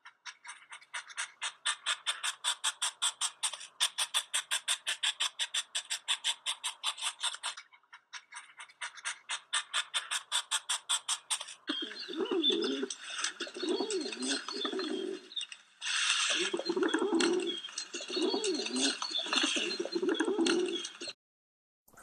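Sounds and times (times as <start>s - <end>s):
rapid rhythmic scratching: 1.4s - 7.6s, 9.0s - 21.2s
dove cooing: 9.3s - 15.5s, 16.2s - 21.2s.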